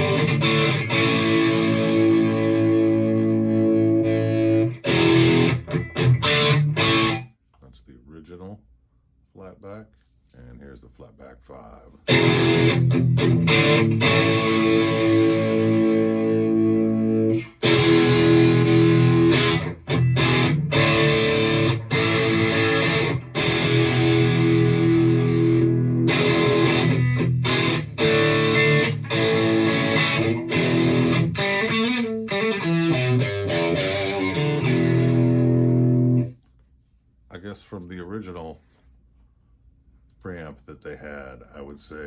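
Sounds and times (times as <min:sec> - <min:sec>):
distorted electric guitar: 0:00.0 - 0:07.3, 0:12.1 - 0:36.4.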